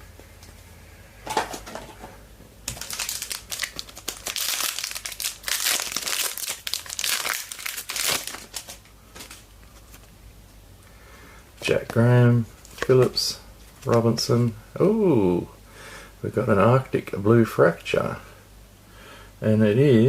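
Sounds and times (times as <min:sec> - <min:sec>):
wrapper being torn and crumpled: 0:02.7 - 0:10.1.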